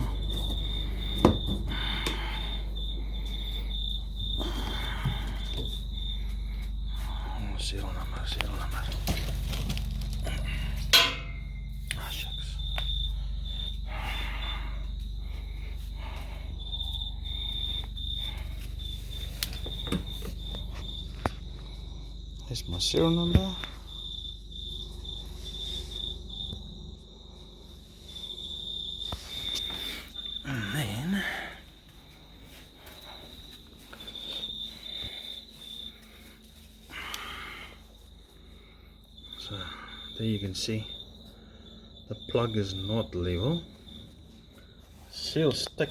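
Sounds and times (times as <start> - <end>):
low steady hum: 0.0 - 42.2
cricket chirping: 0.0 - 45.9
handling rustle: 8.4 - 10.4.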